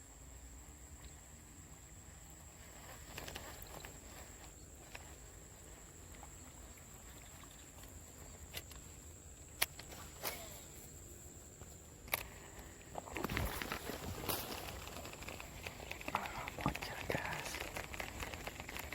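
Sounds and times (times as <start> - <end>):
rustling: 2.0 - 18.9
sharp clicks: 9.6 - 10.4, 13.1 - 18.9.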